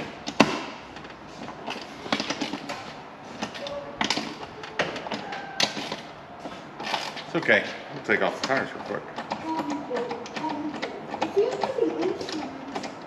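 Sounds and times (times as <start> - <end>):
hand tools and metal parts clicking: 0.0 - 7.5.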